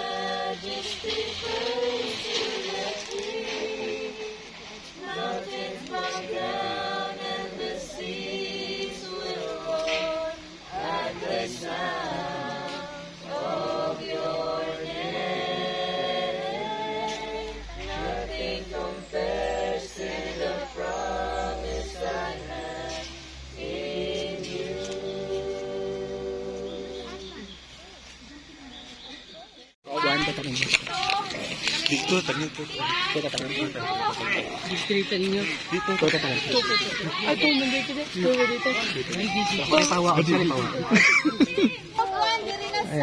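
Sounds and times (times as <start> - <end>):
group singing in unison: 0.0 - 27.6.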